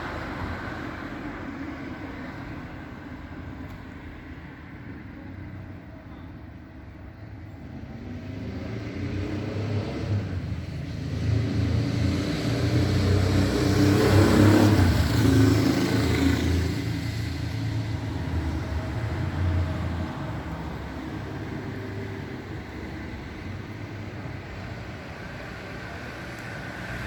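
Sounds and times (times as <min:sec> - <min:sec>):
vehicle engine passing by: 0:08.2 - 0:21.8.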